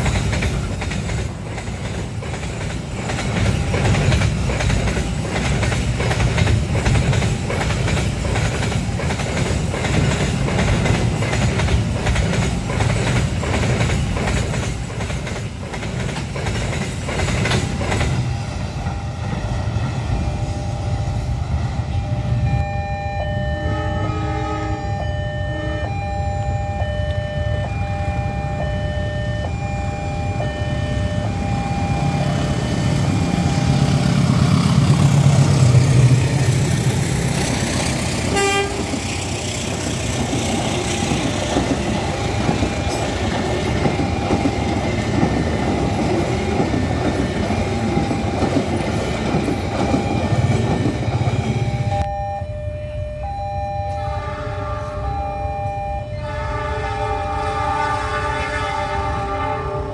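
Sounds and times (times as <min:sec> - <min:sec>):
train wheels clattering over rail joints: 0:00.0 - 0:19.0, 0:34.2 - 0:51.8
two-tone crossing warning alarm: 0:00.0 - 0:36.1, 0:37.8 - 0:39.6, 0:40.2 - 0:59.9.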